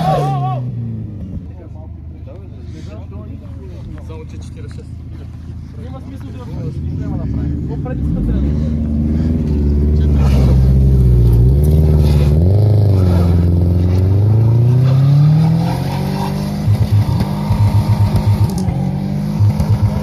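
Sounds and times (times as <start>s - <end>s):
car engine revving: 4.3s - 20.0s.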